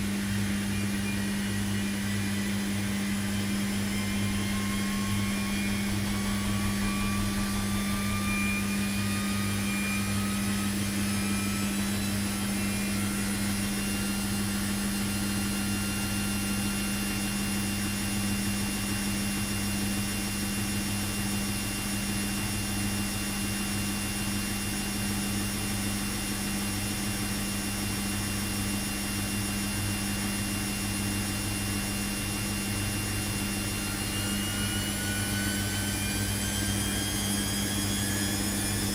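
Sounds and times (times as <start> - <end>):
high whine rising in pitch: 0.0 - 18.8, 31.2 - 38.9
washing machine motor hum: 0.0 - 38.9.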